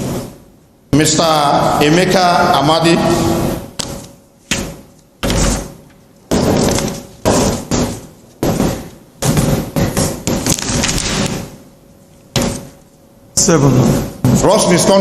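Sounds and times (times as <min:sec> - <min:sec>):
faint steady hum: 0:00.0 - 0:15.0
loud knocks in reverberant room: 0:03.0 - 0:12.9, 0:13.7 - 0:15.0.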